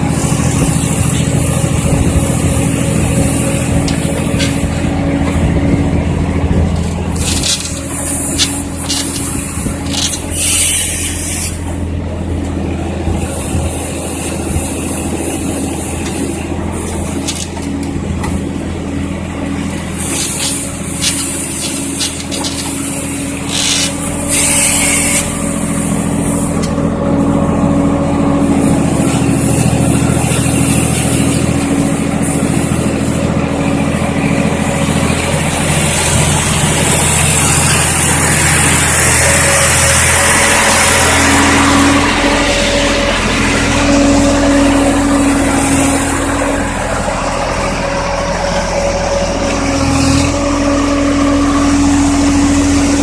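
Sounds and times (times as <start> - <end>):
tractor diesel engine running: 0.0 - 53.0
hydraulic hiss bursts: 7.1 - 11.6, 20.0 - 26.6.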